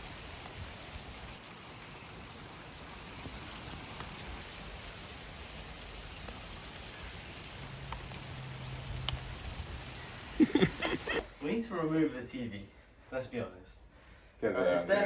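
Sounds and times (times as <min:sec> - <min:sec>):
steady rain hiss: 0:00.0 - 0:15.0
faint drip ticks: 0:06.0 - 0:10.7.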